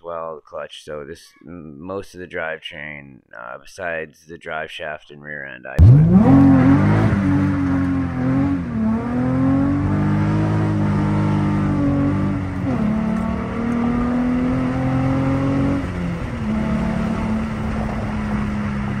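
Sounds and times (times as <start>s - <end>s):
car engine accelerating: 5.8s - 19.0s.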